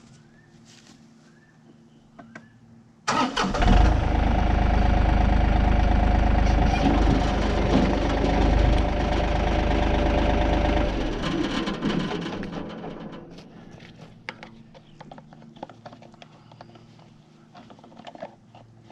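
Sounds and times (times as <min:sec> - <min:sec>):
tractor engine running: 0:03.1 - 0:14.0.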